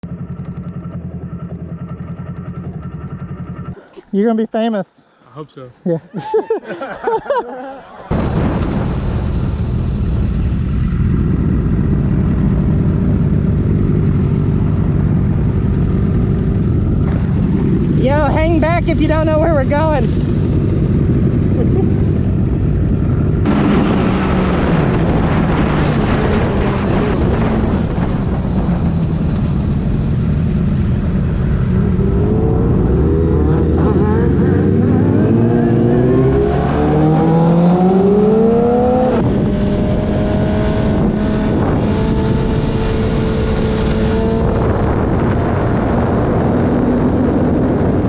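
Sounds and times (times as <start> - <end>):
sport bike engine: 0.0 - 4.1, 10.6 - 48.0
wind on microphone: 8.7 - 48.0.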